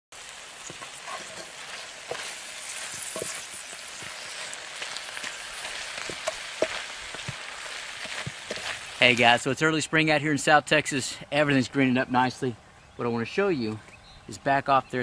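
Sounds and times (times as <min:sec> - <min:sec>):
food sizzling in a skillet: 0:00.1 - 0:09.5.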